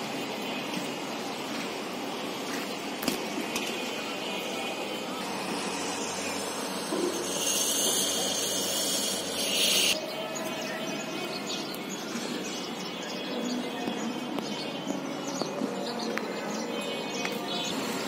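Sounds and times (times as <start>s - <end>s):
street and rail-side noise: 0.0s - 18.0s
loud hiss: 5.0s - 10.0s.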